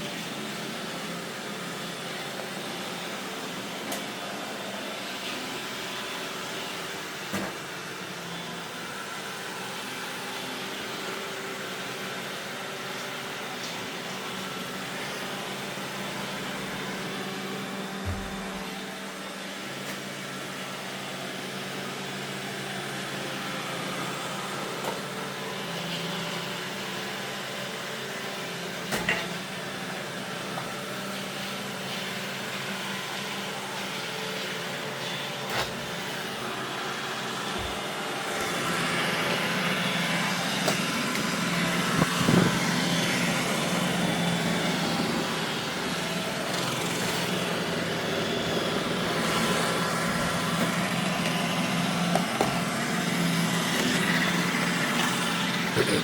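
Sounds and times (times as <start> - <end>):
robot vacuum motor hum: 14.2 - 19.3, 32.6 - 56.0.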